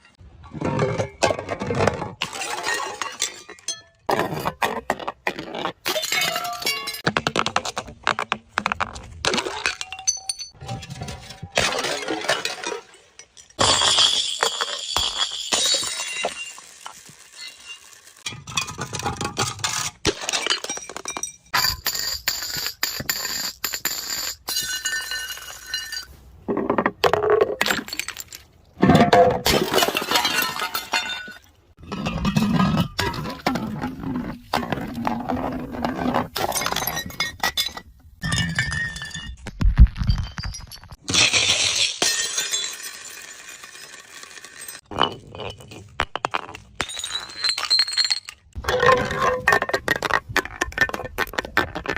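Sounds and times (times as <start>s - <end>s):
glass bottles breaking: 2.2s - 4.1s, 5.8s - 7.2s, 9.2s - 10.6s, 11.3s - 26.1s, 27.1s - 33.5s, 36.4s - 51.9s
glass shards tinkling: 13.2s - 18.2s.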